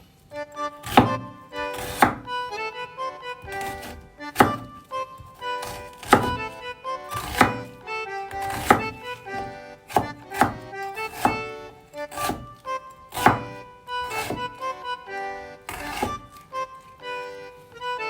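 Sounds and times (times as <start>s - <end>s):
accordion music: 0.0s - 18.0s
knife chopping on cutting board: 0.8s - 2.3s, 3.4s - 7.7s, 8.3s - 11.5s, 12.1s - 14.6s, 15.7s - 16.4s.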